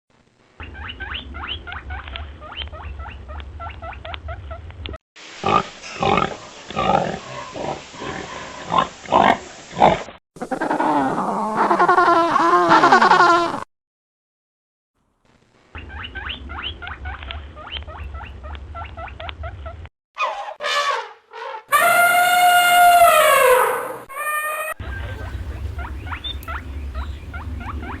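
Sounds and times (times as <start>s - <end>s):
loud animal grunts: 5.4s - 11.8s
wavering animal cry: 10.4s - 13.6s, 15.8s - 28.0s
high chirping animal calls: 15.8s - 19.5s, 21.7s - 28.0s
low rumble: 24.8s - 28.0s.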